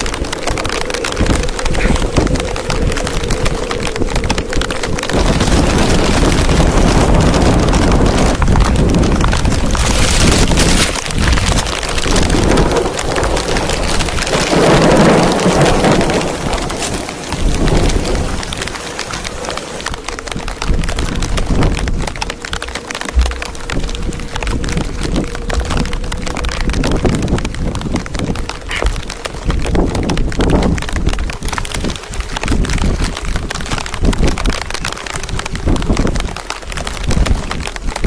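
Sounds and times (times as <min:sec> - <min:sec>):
heavy rain falling: 0:00.0 - 0:38.0
wind gusts hitting microphone: 0:00.0 - 0:38.0.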